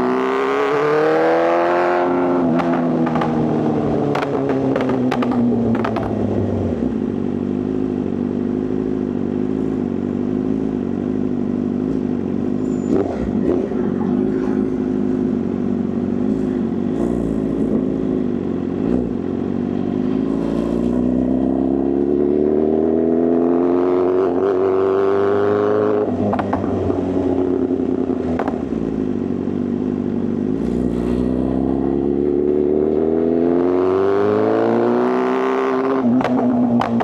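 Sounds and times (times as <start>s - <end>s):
motorcycle engine accelerating: 0.0s - 37.0s
exhaust cracks: 28.2s - 29.0s, 36.0s - 37.0s.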